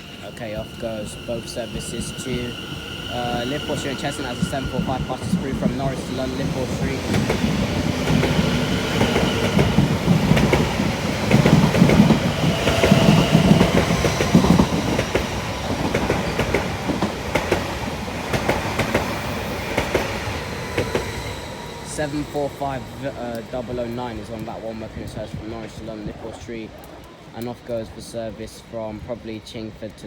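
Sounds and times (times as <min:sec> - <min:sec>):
departing trains: 0:00.0 - 0:30.0
electric train passing at speed: 0:00.0 - 0:30.0
wheels clicking over rail joints: 0:03.2 - 0:21.2.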